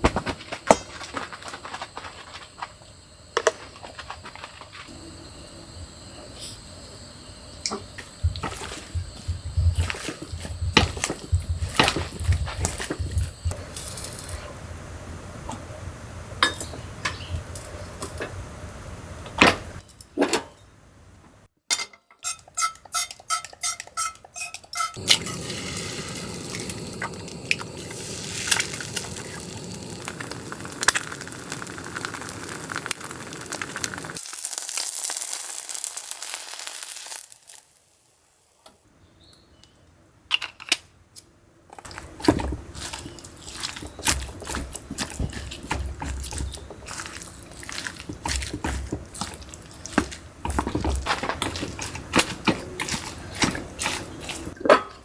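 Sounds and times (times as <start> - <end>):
food sizzling: 10.8 - 18.9, 24.9 - 38.6, 41.9 - 54.6
metal utensils clinking on pans: 21.7 - 25.5.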